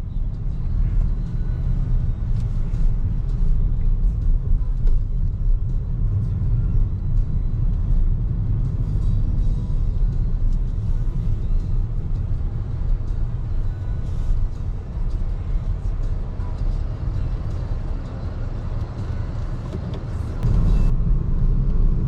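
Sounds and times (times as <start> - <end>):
road and tyre rumble: 0.0 - 22.0.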